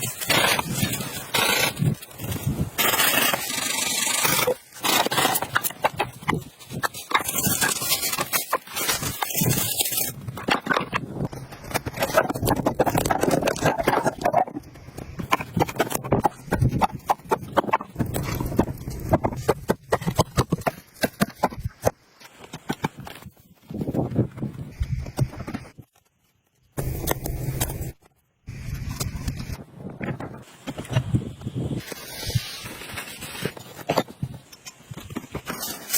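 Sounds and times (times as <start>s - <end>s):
scraping: 0.0s - 24.0s.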